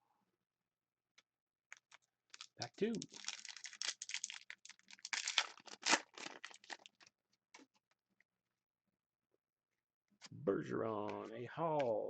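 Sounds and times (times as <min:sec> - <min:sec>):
wrapper tearing and crinkling: 0:01.7 - 0:07.1.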